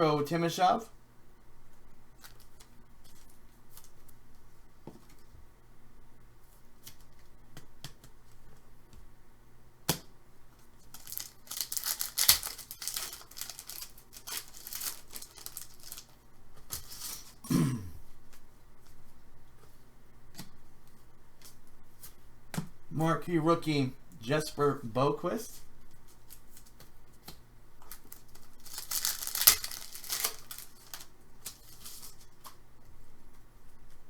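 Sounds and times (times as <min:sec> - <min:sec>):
wrapper crinkling and tearing: 0:10.8 - 0:17.4, 0:27.8 - 0:32.3.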